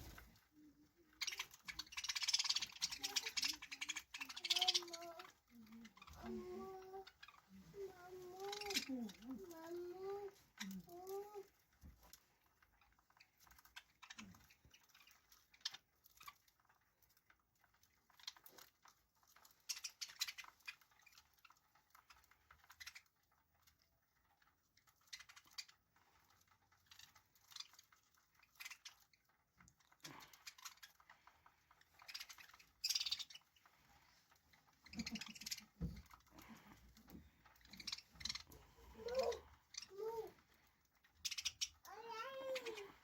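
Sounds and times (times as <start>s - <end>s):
budgerigar chatter: 1.2s - 7.5s.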